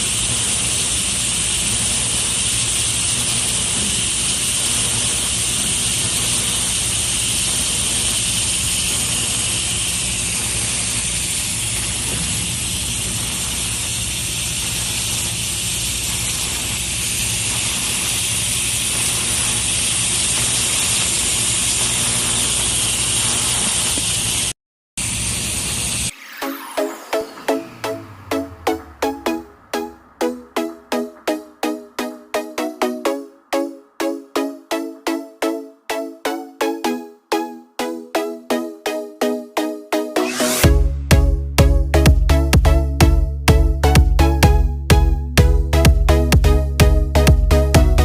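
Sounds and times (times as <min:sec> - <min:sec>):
welding arc hissing: 0:00.0 - 0:33.0.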